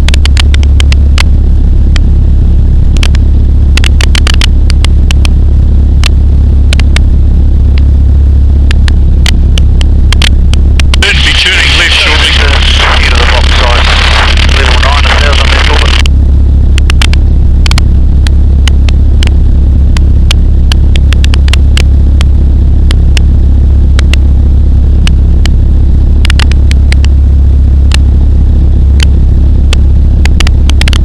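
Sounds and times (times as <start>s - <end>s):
sharp clicks: 0.0s - 1.3s, 8.7s - 16.1s, 16.8s - 17.8s, 30.2s - 31.0s.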